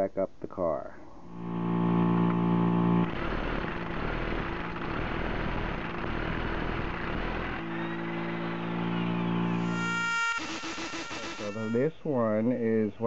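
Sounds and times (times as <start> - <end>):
impact wrench whining and hammering: 7.4 - 11.8.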